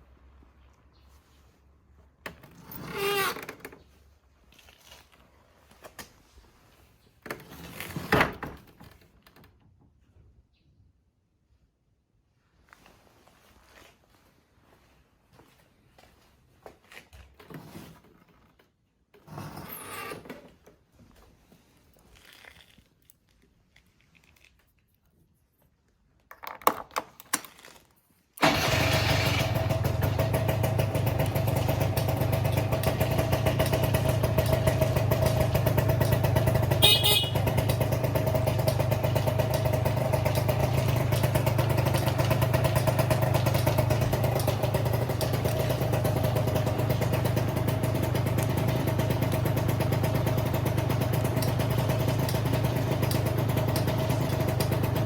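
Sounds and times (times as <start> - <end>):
scooter engine cranking and idling: 2.2 - 5.1, 17.3 - 20.9, 28.4 - 55.0.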